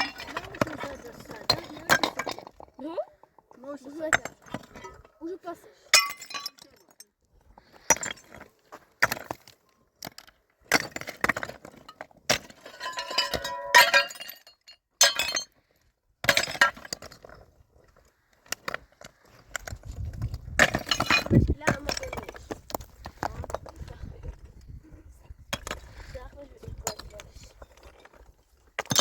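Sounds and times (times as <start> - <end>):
hard objects clinking: 0.0 - 3.3, 5.9 - 7.1, 7.7 - 15.6, 18.6 - 24.1, 25.5 - 29.0.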